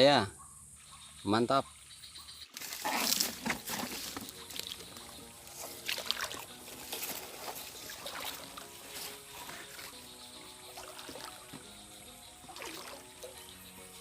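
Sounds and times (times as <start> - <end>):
wading through shallow water: 2.7 - 13.4.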